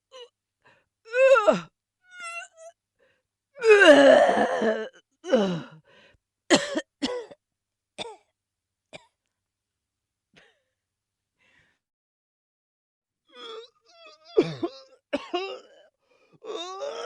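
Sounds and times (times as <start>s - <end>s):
person retching: 3.7s - 5.0s, 13.4s - 17.0s.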